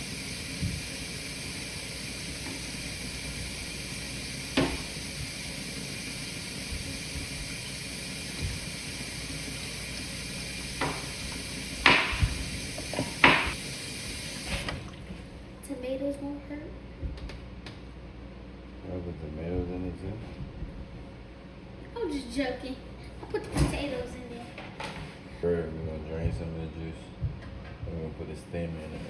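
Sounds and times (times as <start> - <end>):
running kitchen water hiss: 0.0 - 15.9
utensils knocking: 11.8 - 13.6.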